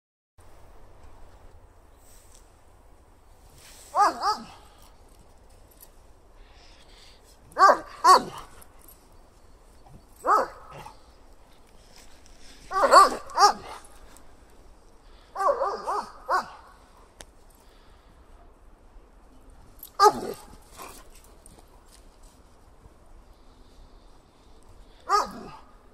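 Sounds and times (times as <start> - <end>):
dog barking: 3.9 - 4.6, 7.6 - 8.5, 10.2 - 11.0, 12.7 - 13.8, 15.4 - 16.7, 20.0 - 20.9, 25.1 - 25.7.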